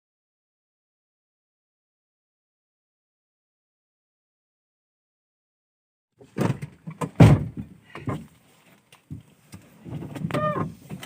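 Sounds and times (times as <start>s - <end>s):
irregular thuds and knocks: 6.2s - 8.4s.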